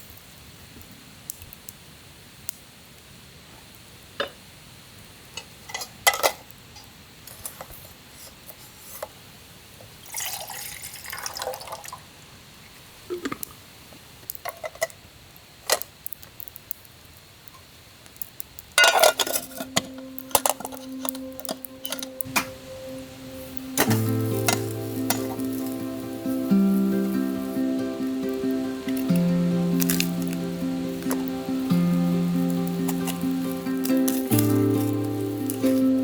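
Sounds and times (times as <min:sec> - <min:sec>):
metal cookware clinking: 0:05.4 - 0:06.4, 0:18.8 - 0:22.6, 0:23.8 - 0:27.2, 0:29.8 - 0:35.8
cookware clattering: 0:05.7 - 0:06.4, 0:18.8 - 0:22.6
water pouring and dripping: 0:09.9 - 0:13.6, 0:18.8 - 0:36.0
music with held notes: 0:19.2 - 0:36.0.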